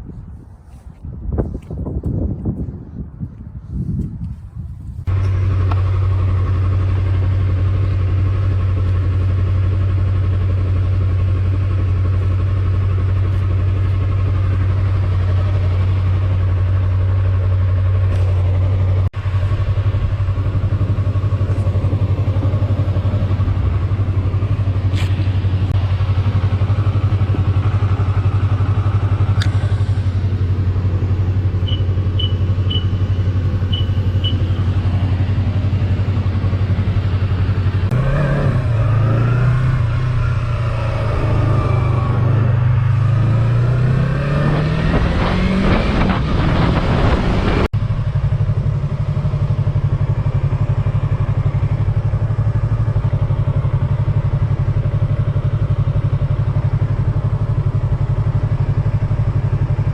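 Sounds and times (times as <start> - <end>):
motorcycle engine idling: 4.5 - 38.9, 47.8 - 59.9.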